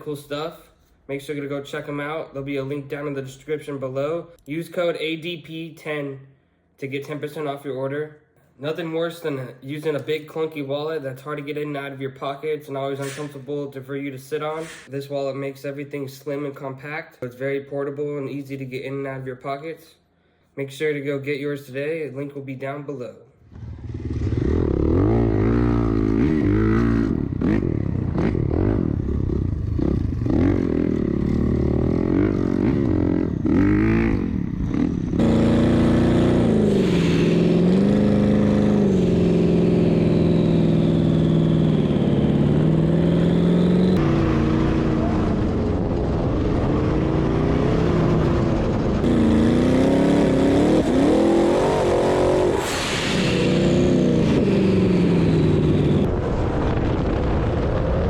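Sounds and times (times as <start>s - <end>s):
off-road vehicle engine revving: 23.5s - 56.1s.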